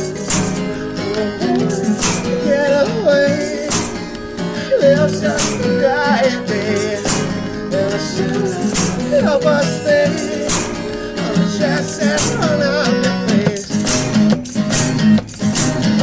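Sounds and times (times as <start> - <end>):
sharp percussive hit: 0.0 - 2.4, 3.6 - 4.2, 10.2 - 11.1
acoustic guitar chords: 0.0 - 16.0.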